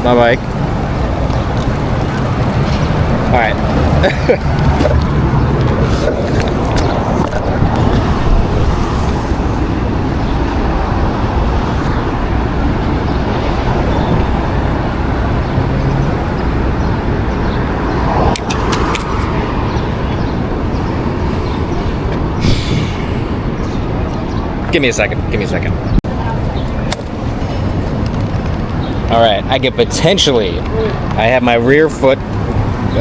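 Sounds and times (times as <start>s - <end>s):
passing cars: 0.0s - 33.0s.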